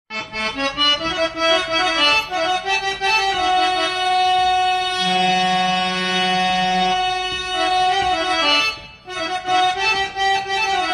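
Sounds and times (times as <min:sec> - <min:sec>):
accordion-like instrumental music: 0:00.1 - 0:10.9.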